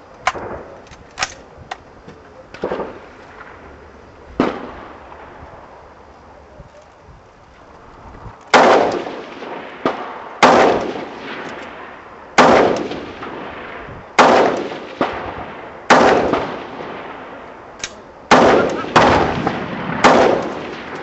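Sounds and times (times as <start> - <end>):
rifle shots with ringing tail: 8.5 - 17.5, 18.3 - 21.0.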